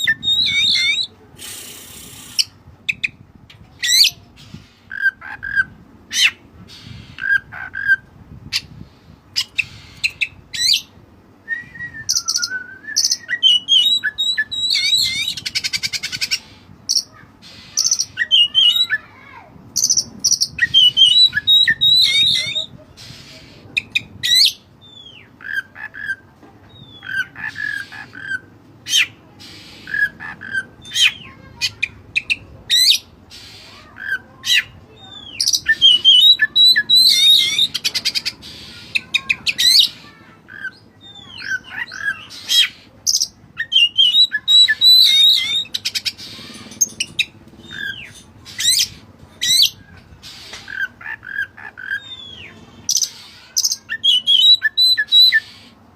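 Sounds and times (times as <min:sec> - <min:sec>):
magpie-robin singing: 0:00.0 - 0:01.2, 0:02.0 - 0:55.8
fast rattling bird trill: 0:35.4 - 0:52.2.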